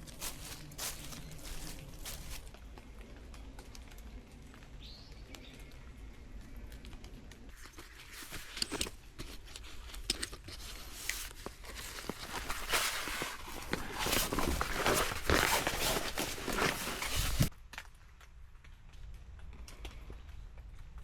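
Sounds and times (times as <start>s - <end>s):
gear rustling: 0.0s - 2.6s, 7.6s - 17.5s.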